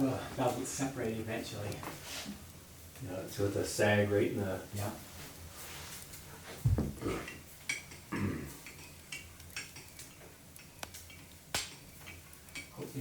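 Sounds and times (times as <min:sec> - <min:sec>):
wood fire crackling: 0:00.0 - 0:13.0
dull knocks: 0:06.6 - 0:07.1.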